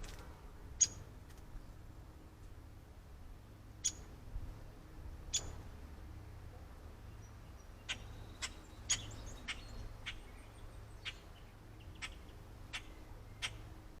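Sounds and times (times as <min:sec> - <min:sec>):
steady low hum: 0:00.0 - 0:14.0
bird chip calls: 0:00.8 - 0:01.0, 0:03.8 - 0:04.1, 0:05.3 - 0:05.6, 0:07.1 - 0:13.8.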